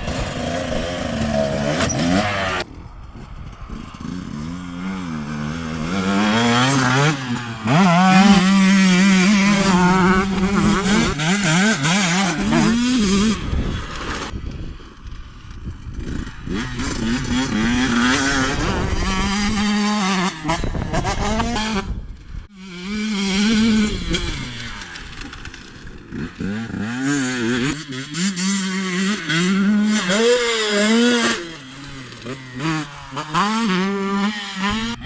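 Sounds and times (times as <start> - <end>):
two-stroke motorbike revving: 0.0 - 35.0
wind buffeting microphone: 12.3 - 22.5.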